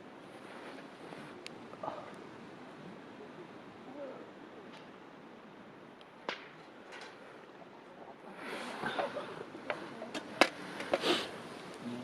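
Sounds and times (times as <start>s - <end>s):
wood campfire crackling: 0.0s - 12.0s
sharp pops of fire: 6.2s - 7.2s.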